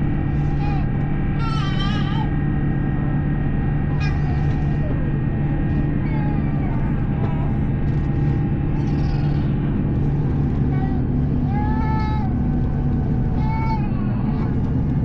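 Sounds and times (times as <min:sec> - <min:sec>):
airplane cabin engine drone: 0:00.0 - 0:15.0.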